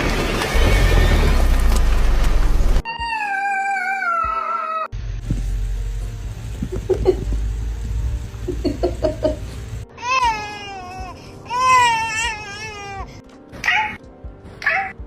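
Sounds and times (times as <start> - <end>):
cat meowing: 2.9 - 4.9
low rumble: 5.0 - 9.8.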